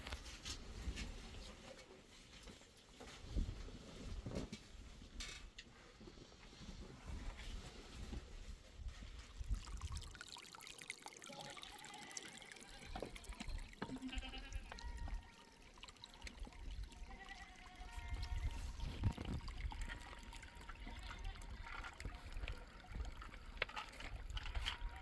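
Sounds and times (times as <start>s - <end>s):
stream trickling: 9.1s - 25.0s
sheep bleating: 11.3s - 13.3s, 13.9s - 15.6s, 17.0s - 18.6s, 20.1s - 21.6s.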